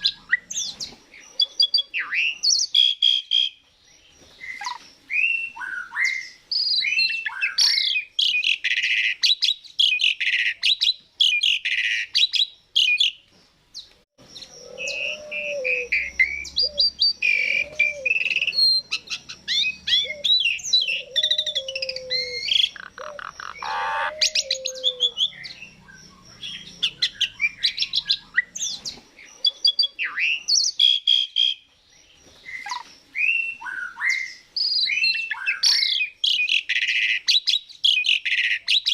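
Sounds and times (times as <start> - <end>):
starling singing: 14.2 - 31.6.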